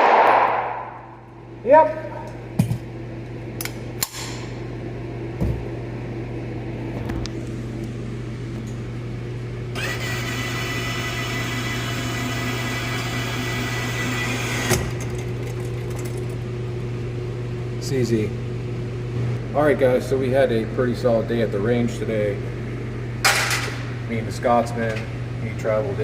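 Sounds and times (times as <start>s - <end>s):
steady low hum: 0.0s - 26.0s
electric motor whirring: 9.8s - 12.5s.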